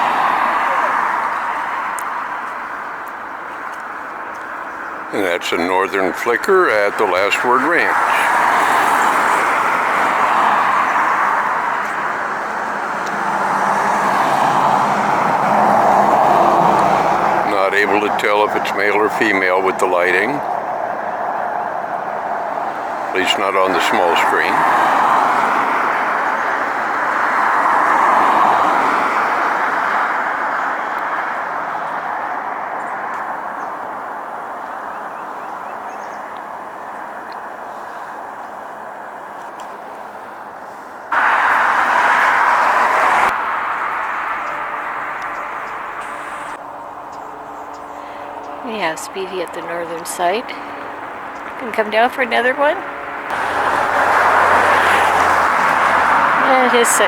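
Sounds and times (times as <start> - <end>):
vehicle passing by: 0.0 - 2.8, 5.1 - 35.0, 38.8 - 57.0
car tyres hissing: 5.1 - 18.5, 22.1 - 33.4, 40.2 - 51.8, 52.9 - 57.0.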